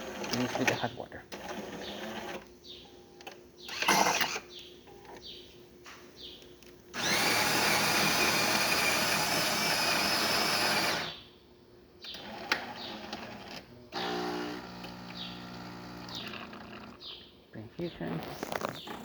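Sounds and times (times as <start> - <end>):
mechanical clicks and whirring: 3.2 - 5.2
pump humming: 7.0 - 11.1, 13.9 - 17.0
coffee grinder grinding beans: 14.0 - 17.0, 18.2 - 19.0.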